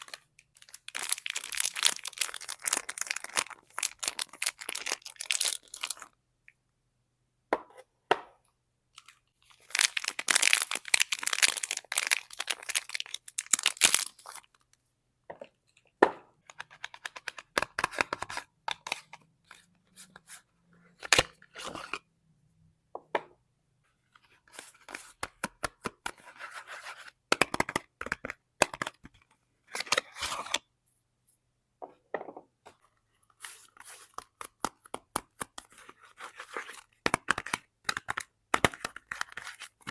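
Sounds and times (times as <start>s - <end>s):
wrappers tearing and crinkling: 0.0s - 6.0s, 9.7s - 14.2s.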